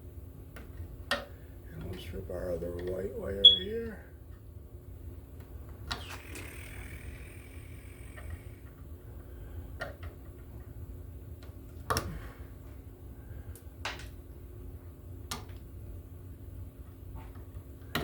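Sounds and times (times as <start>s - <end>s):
low hum: 1.6s - 9.8s
insulation sliding off squeal: 5.9s - 8.4s.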